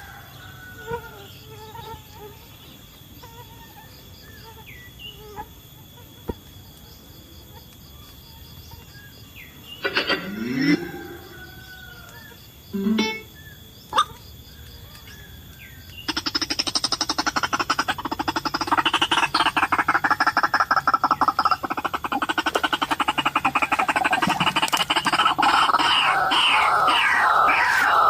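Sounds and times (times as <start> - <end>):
waterhen croaking calls: 9.8 - 11.9, 16.1 - 28.0.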